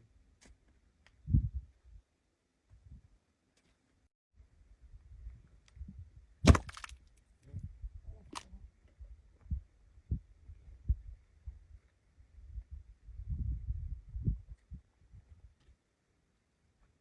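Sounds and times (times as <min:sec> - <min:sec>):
sharp mud splat: 0:06.4 - 0:07.0
mud bubbling and plopping: 0:06.5 - 0:06.9.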